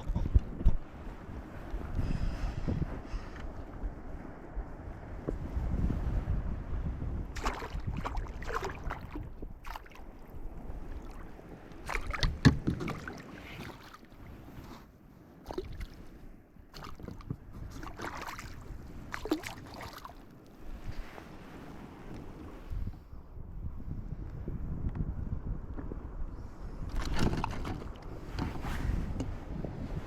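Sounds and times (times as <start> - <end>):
water splashing against a kayak: 0.0 - 23.1, 25.7 - 30.0
wind rumble on microphone: 0.0 - 30.0.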